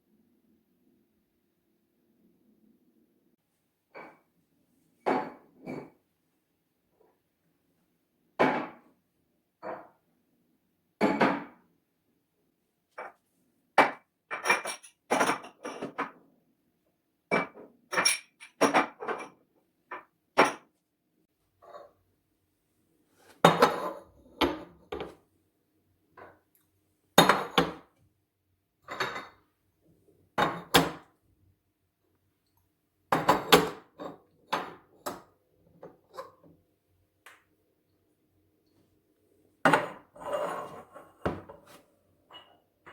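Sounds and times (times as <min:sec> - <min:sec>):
dishes clinking and knocking: 0:13.8 - 0:16.2, 0:17.3 - 0:20.7, 0:39.7 - 0:41.7.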